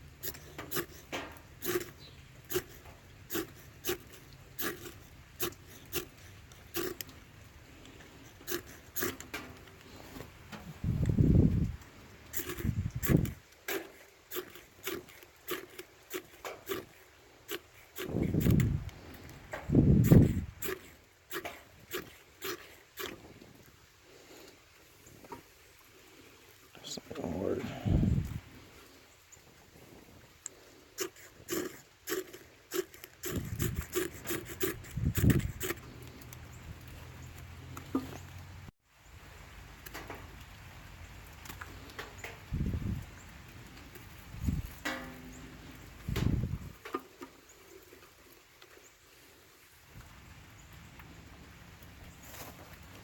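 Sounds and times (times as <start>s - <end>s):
tool scraping wood: 0.0s - 10.3s, 12.3s - 23.4s, 30.5s - 36.3s, 37.7s - 38.4s
kindling crackling in wood stove: 0.0s - 53.0s.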